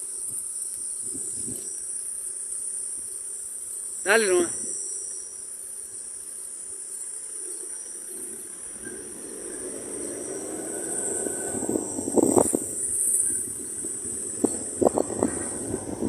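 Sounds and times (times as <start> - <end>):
insects chirring: 0.0 - 16.0
low rushing noise: 8.2 - 16.0.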